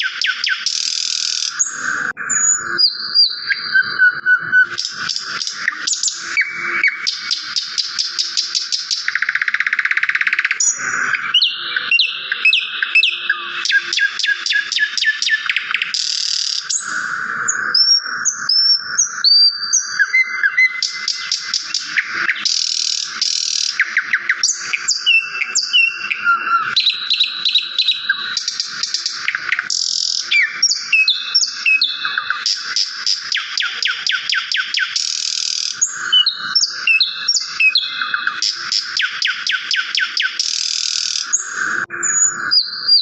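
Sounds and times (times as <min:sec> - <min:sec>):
songbirds chirping and singing: 0:00.0 - 0:43.0.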